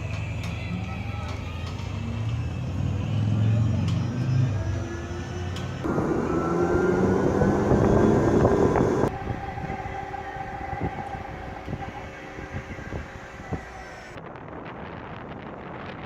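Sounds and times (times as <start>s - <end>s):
zip-line trolley rolling on cable: 3.5s - 14.2s
steady hum: 5.8s - 14.2s.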